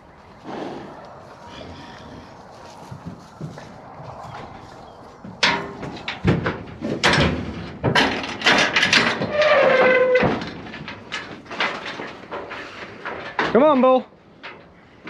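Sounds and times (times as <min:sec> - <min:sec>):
hooves knocking on metal: 0:00.4 - 0:15.0
drawn-out squeal: 0:09.2 - 0:10.5.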